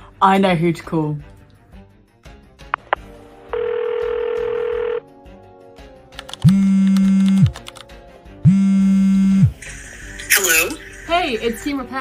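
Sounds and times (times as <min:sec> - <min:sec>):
phone ringing tone: 0:02.8 - 0:05.0
steady phone tone: 0:02.8 - 0:05.0, 0:08.5 - 0:09.6.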